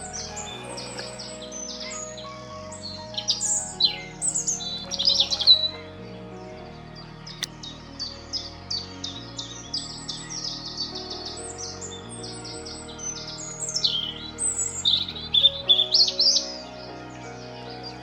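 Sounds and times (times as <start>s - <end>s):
soft background music: 0.0s - 18.0s
songbird singing: 0.0s - 18.0s.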